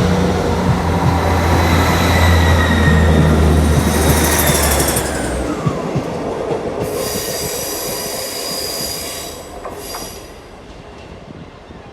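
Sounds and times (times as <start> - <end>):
train running on rails: 0.0 - 11.9
train wheels squealing: 0.8 - 6.0, 6.8 - 10.6.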